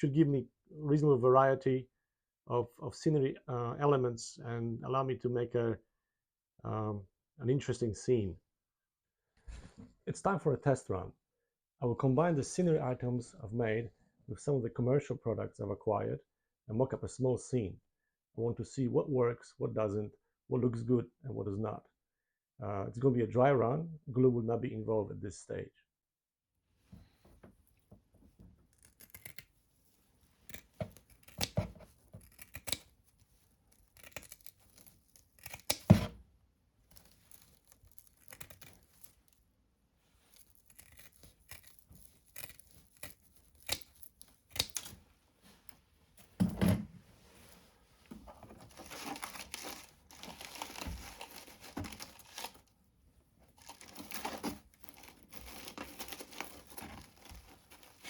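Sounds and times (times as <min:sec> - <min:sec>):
hands rustling fibrous material: 0:47.2 - 0:52.7, 0:53.5 - 0:58.0.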